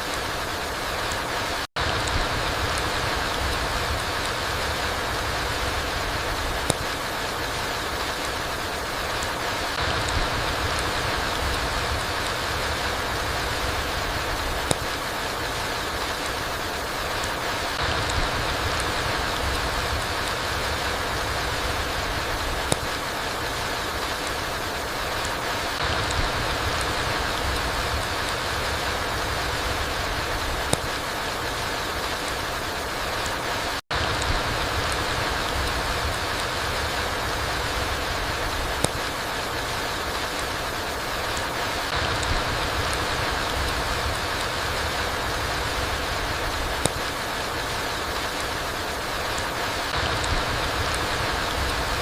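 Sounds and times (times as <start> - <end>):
rain on forest floor: 0.0 - 52.0
sharp tick: 6.6 - 6.9, 14.6 - 15.0, 22.6 - 23.0, 30.7 - 31.0, 38.8 - 39.1, 46.8 - 47.1
faint drip ticks: 6.6 - 8.5, 9.1 - 32.4, 34.0 - 48.6.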